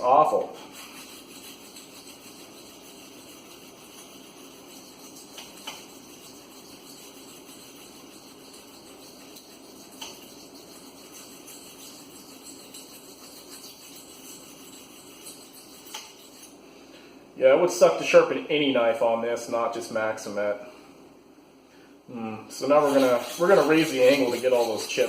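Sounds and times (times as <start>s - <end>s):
knife scraping on sharpening stone: 0.7s - 16.6s, 22.8s - 25.0s.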